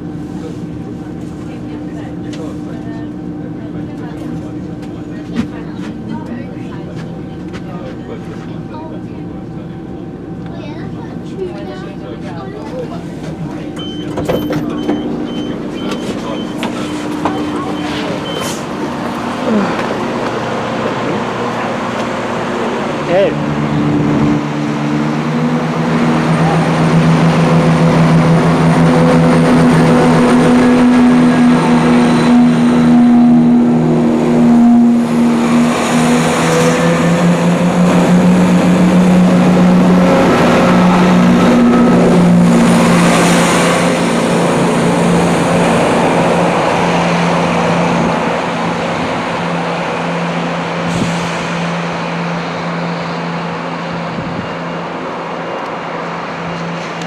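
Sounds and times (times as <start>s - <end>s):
diesel train engines humming: 0.0s - 57.0s.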